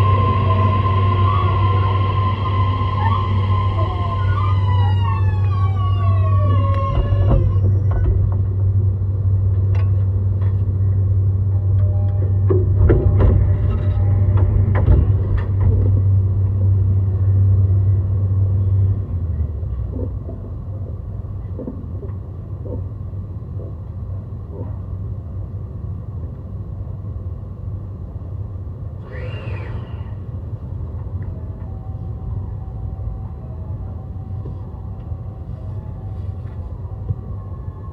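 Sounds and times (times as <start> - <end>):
rising and falling tone: 0.0 - 7.6
train wheels rumbling on rail: 0.0 - 37.9.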